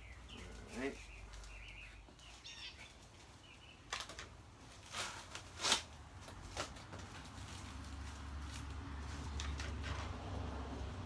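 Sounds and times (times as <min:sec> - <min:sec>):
faint bird chirps: 0:00.0 - 0:03.8
rustles and knocks of handled parts: 0:03.9 - 0:10.6.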